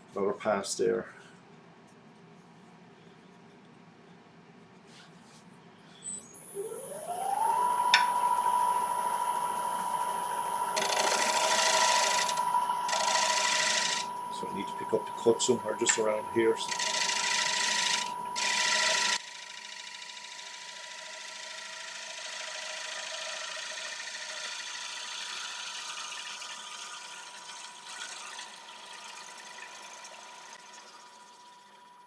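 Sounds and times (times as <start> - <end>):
thin steady whine: 6.2 - 21.3
gouge cutting wood on lathe: 10.7 - 31.6.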